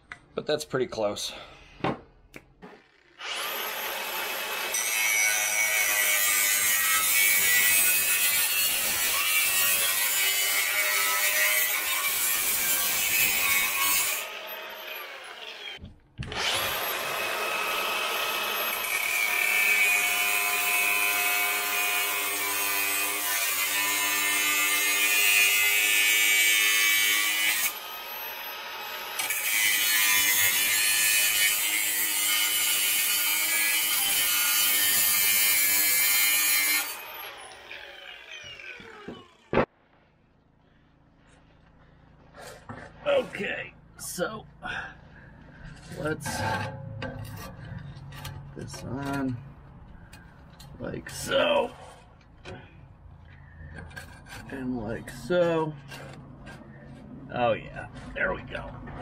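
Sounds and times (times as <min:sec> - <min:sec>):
power tool cutting metal pipe: 0:02.9 - 0:39.7.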